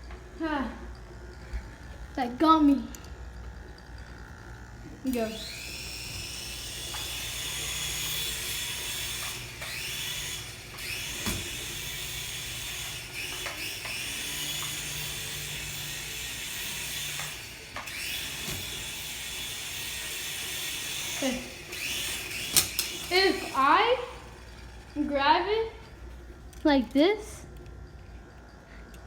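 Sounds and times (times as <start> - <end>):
toy aircraft motor whine: 0.0 - 29.0.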